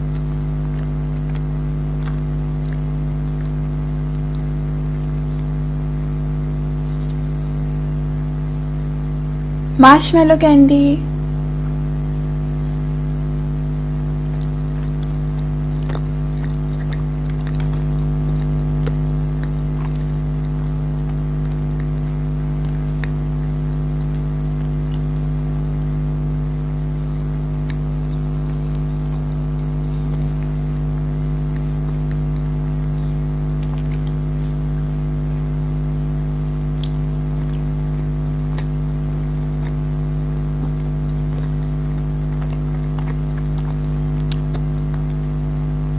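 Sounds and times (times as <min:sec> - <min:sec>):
chewing mouth clicks: 0:00.0 - 0:05.9, 0:06.7 - 0:07.9, 0:12.2 - 0:45.9
loud steady low hum: 0:05.1 - 0:45.9.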